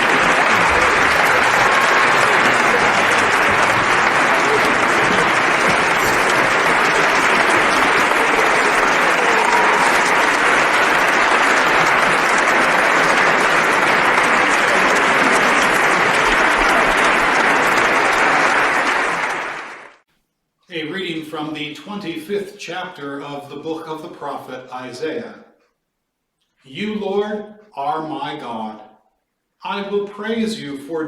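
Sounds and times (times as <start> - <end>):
crowd applauding: 0.0 - 20.0.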